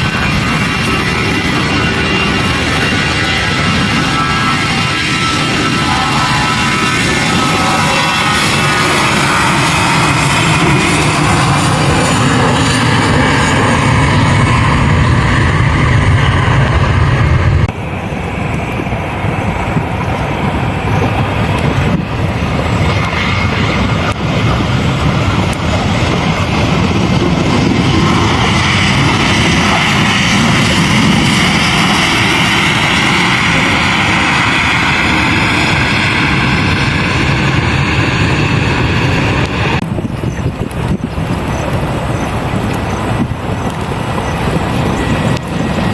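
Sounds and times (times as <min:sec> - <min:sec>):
aircraft engines roaring: 0:00.0 - 0:45.9
drifting tones: 0:00.0 - 0:45.9.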